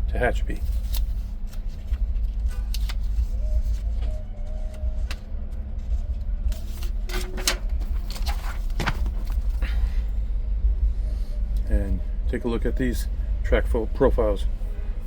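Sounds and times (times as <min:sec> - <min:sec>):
low rumble and hum: 0:00.0 - 0:15.0
paper pages rustling: 0:00.5 - 0:09.7.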